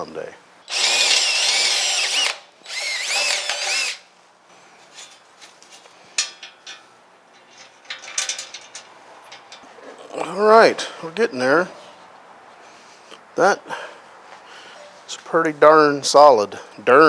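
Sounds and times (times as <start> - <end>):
electric drill boring into steel: 0.7 - 4.0.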